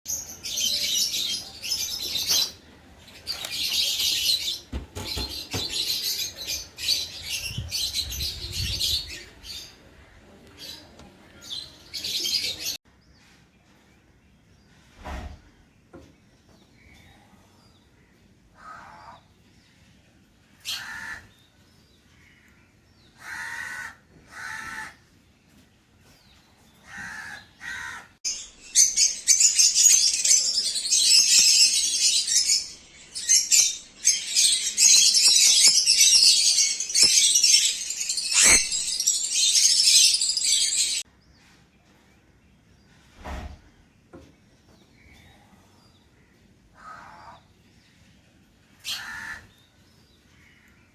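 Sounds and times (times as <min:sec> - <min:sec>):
parrots screeching and chattering: 0:26.9 - 0:41.0, 0:48.8 - 0:49.4.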